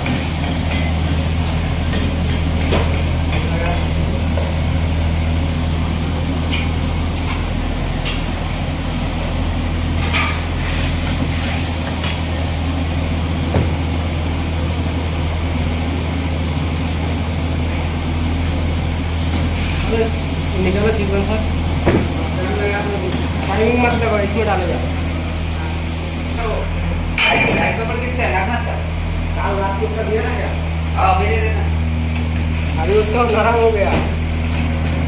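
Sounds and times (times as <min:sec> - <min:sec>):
low mechanical hum: 0:00.0 - 0:35.0.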